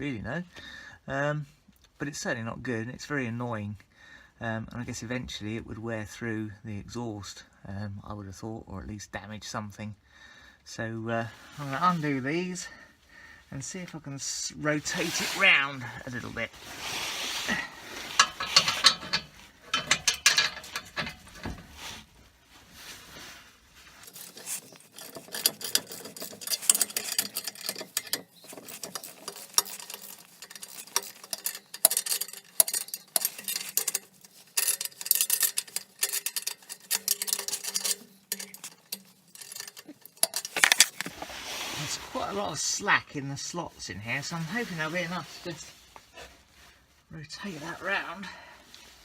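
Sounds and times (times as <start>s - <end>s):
metal clinks: 24.0s - 41.2s
ratchet wrench clicking: 24.1s - 41.1s.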